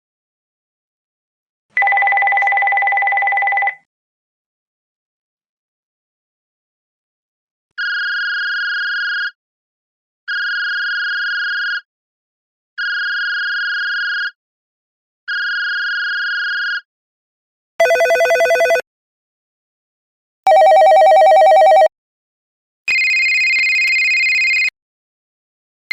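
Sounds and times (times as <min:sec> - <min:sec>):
electronic phone ringer beeps: 0:17.8 - 0:18.8, 0:20.5 - 0:21.9, 0:22.9 - 0:24.7
warbling phone ring: 0:17.8 - 0:18.8, 0:20.5 - 0:21.9, 0:22.9 - 0:24.7.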